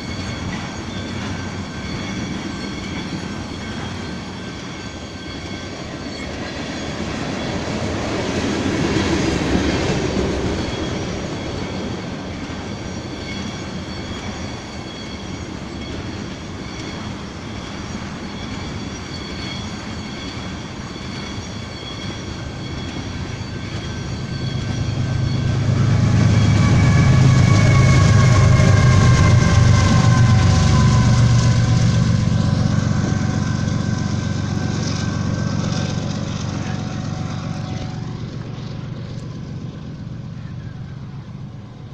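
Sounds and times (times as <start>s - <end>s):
locomotive engine rumble: 0.0s - 41.9s
train running noise: 0.0s - 41.9s.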